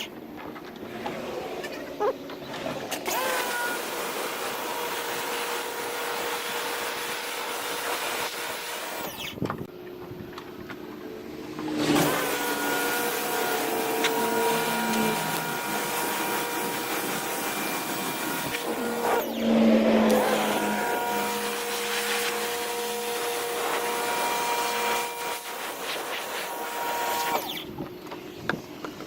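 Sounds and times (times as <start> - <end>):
pressure washer spraying: 12.0 - 27.3.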